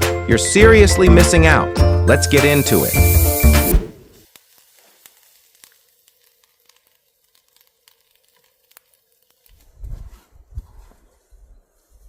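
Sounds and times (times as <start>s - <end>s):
wood fire crackling: 2.4s - 10.4s.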